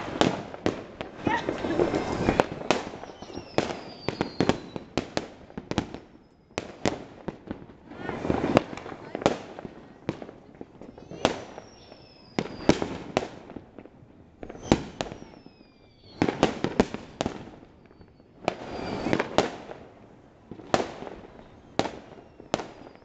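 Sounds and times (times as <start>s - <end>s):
firecrackers crackling: 0.0s - 23.0s
fireworks bangs: 0.0s - 23.0s
falling firework whistles: 1.2s - 6.9s, 10.8s - 13.3s, 14.4s - 19.7s, 20.6s - 23.0s.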